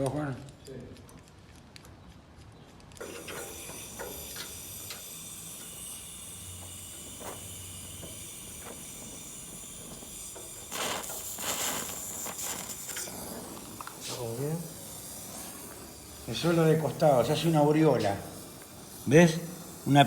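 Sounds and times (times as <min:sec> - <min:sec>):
welding torch hissing: 0:03.0 - 0:20.0.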